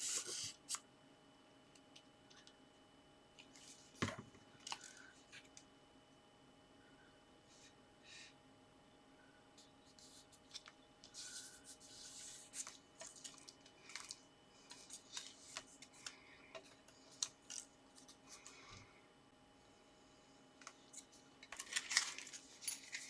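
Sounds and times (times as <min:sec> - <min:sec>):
card and paper rustling: 0:03.4 - 0:05.6, 0:09.9 - 0:18.7, 0:20.6 - 0:23.0.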